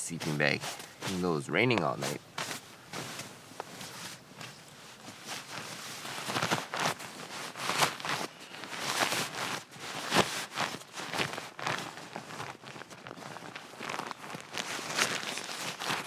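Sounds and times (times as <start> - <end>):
camping gear rustling: 0.0 - 16.0.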